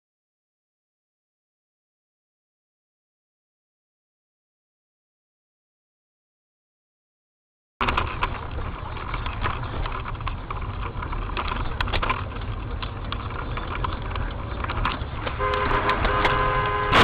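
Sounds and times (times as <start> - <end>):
road traffic: 7.8 - 17.0
rumble of moving car: 7.8 - 17.0
car horn blaring: 15.4 - 17.0.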